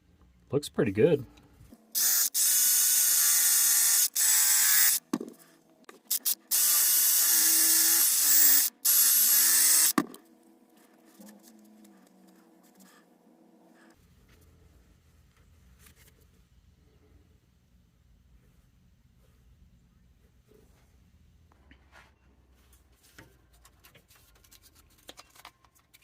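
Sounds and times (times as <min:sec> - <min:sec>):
drill spinning polishing pad: 0:02.0 - 0:05.0, 0:06.1 - 0:10.0.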